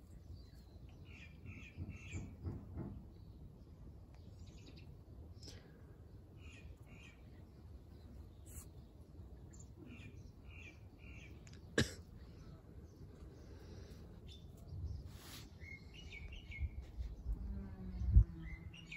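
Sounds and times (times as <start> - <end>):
small birds chirping: 0.0 - 18.9
low background rumble: 15.8 - 18.9.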